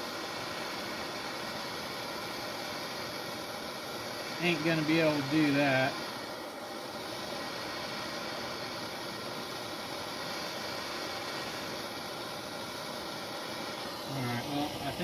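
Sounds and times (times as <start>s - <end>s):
propane torch hissing: 0.0s - 15.0s.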